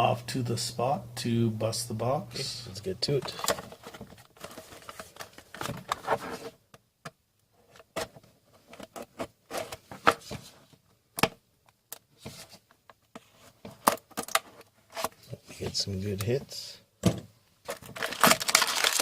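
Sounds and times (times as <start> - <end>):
wrapping and cardboard rustling: 3.2 - 6.6, 17.6 - 19.0.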